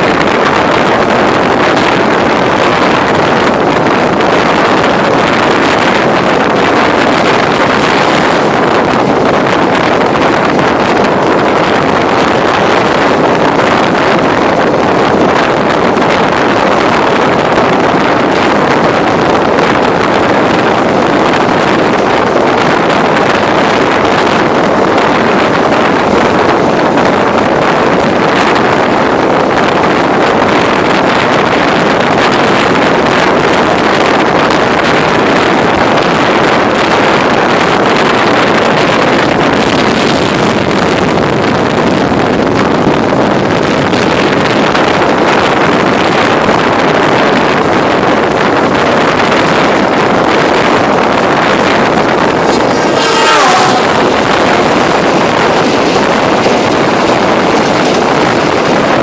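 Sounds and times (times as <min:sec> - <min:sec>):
freight train passing: 0:00.0 - 0:31.2, 0:49.5 - 0:59.0
passenger train running: 0:00.0 - 0:59.0
wind on microphone: 0:00.0 - 0:59.0
short falling whine: 0:51.9 - 0:58.3.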